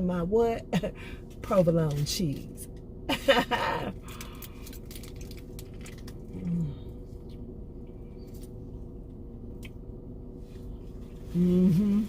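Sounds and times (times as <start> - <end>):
person chewing food: 3.9 - 9.8.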